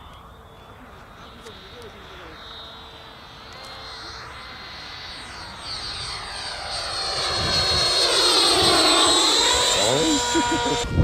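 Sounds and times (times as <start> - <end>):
model airplane engine and propeller: 0.0 - 11.0.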